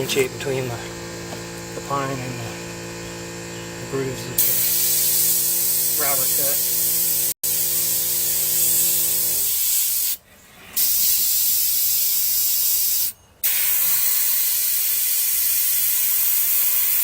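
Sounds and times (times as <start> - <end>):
low steady hum: 0.0 - 7.3
airbrush hissing: 0.0 - 10.2, 10.8 - 17.0.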